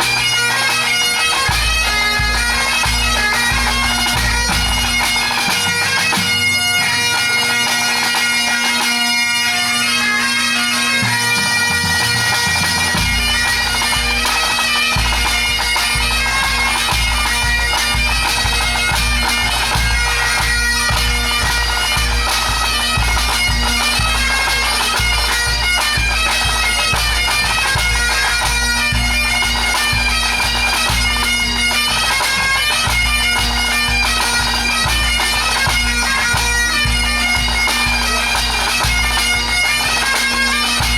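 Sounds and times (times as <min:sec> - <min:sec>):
bagpipes with drones: 0:00.0 - 0:40.9.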